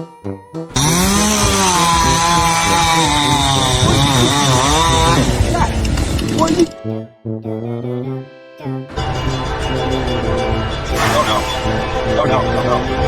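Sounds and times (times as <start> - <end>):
loud motor running: 0.7 - 6.8, 10.9 - 12.7
short music notes: 10.8 - 12.9.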